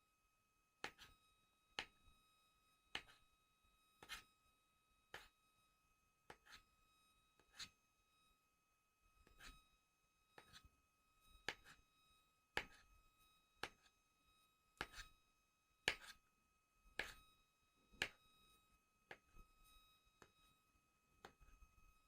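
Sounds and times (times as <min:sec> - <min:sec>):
faint high tone hum: 0:00.0 - 0:22.0
knife tapping plastic cutting board: 0:15.9 - 0:16.1
knife slicing a banana: 0:15.9 - 0:16.2.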